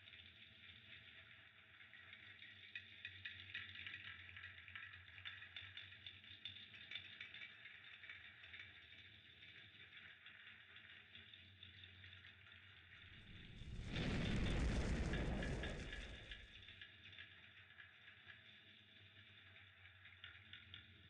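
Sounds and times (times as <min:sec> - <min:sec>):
fire crackling: 0:13.0 - 0:16.7.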